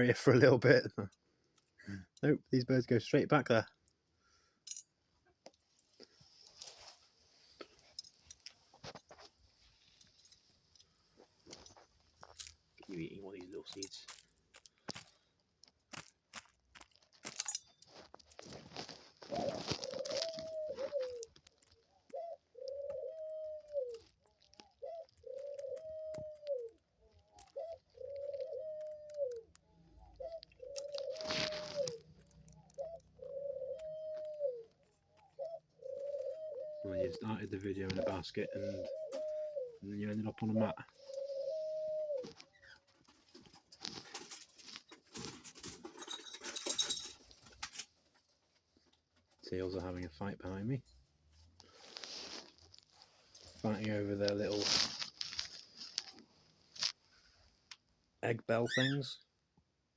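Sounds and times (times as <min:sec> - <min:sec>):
dove cooing: 0:18.5 - 0:47.0
bell toys rattling and jingling: 0:46.0 - 0:47.2.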